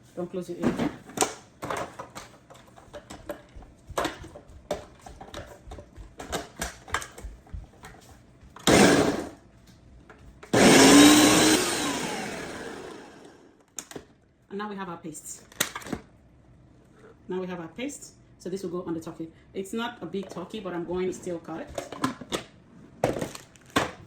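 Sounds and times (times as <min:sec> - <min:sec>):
blender running: 0:08.6 - 0:09.4, 0:10.5 - 0:13.6.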